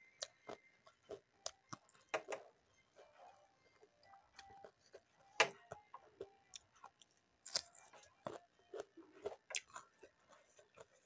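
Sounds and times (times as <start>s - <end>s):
person chewing crunchy food: 0.0s - 11.0s.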